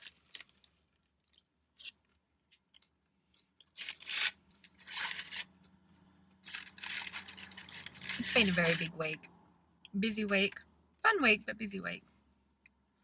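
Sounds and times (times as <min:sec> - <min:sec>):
crunching and chewing hash brown: 0:00.0 - 0:05.7, 0:06.4 - 0:08.5.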